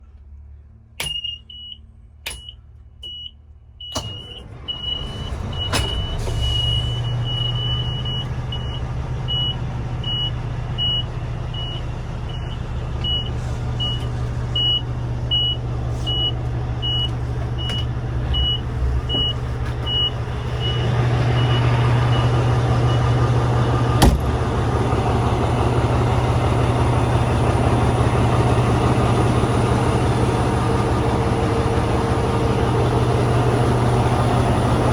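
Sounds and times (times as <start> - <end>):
diesel engine starting and idling: 0.0 - 34.9.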